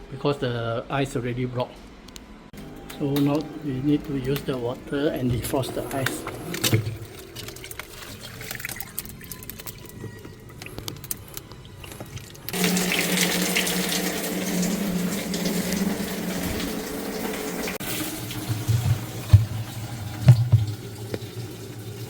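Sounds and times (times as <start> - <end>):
water running onto ice: 6.5 - 10.2, 11.0 - 22.0.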